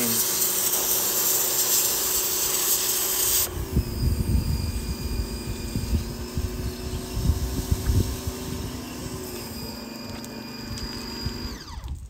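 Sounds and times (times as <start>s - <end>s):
pressure washer spray on stone: 0.0s - 11.5s
machine humming: 0.0s - 12.0s.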